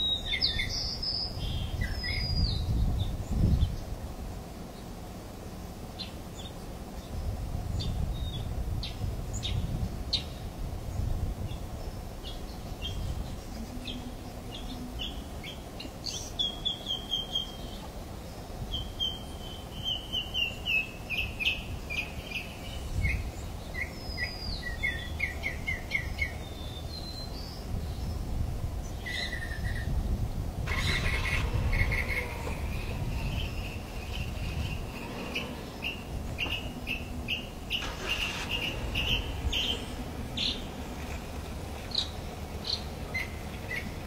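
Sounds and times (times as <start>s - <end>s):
low rumbling background: 0.0s - 44.0s
wild birds chirping: 0.0s - 44.0s.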